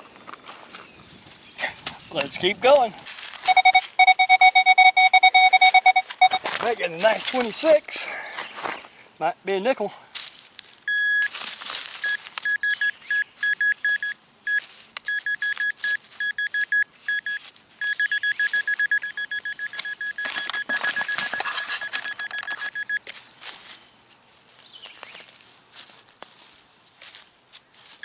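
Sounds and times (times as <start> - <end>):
metal detector beeping: 3.4 - 6.6, 10.9 - 11.4, 12.0 - 23.1
digging scraping and crunching: 5.3 - 9.0, 17.1 - 28.0.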